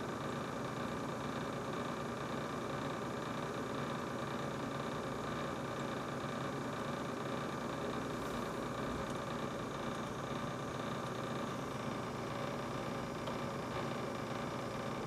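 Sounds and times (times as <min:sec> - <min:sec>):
refrigerator humming: 0:05.1 - 0:15.0.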